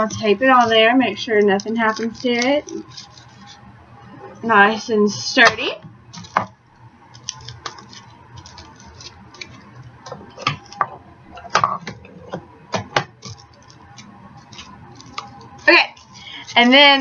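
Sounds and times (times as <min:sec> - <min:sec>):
aluminium foil crinkling: 0:00.0 - 0:03.7, 0:07.0 - 0:12.4, 0:13.1 - 0:17.0.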